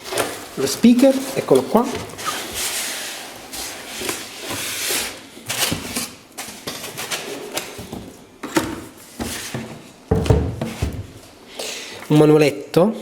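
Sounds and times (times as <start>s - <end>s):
packaging rustling: 0.0s - 8.2s.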